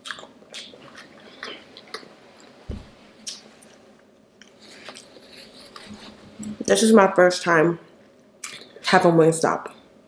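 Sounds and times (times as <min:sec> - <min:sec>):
person chewing: 0:00.0 - 0:02.6, 0:04.4 - 0:05.9
low thump: 0:02.7 - 0:03.0.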